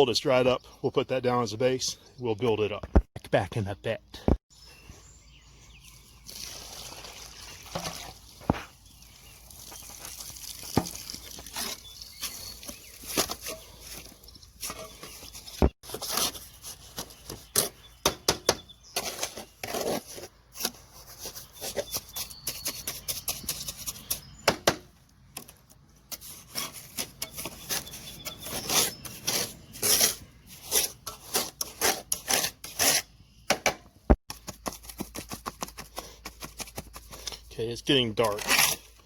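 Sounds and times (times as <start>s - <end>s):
hand tool scraping mortar: 10.8s - 24.8s, 25.4s - 33.1s, 34.3s - 39.0s.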